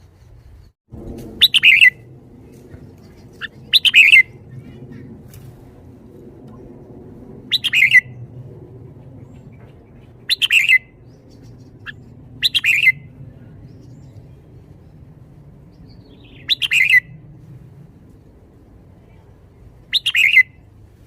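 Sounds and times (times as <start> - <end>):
bird song phrases: 1.4 - 5.2, 7.5 - 8.2, 9.1 - 17.2, 19.0 - 20.6.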